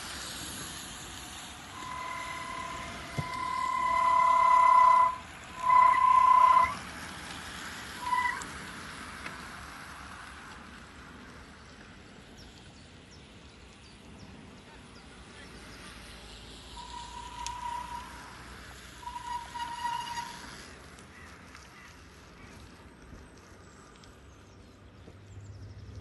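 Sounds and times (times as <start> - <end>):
loud pitched beep: 1.8 - 6.8, 16.8 - 18.2, 19.0 - 20.2.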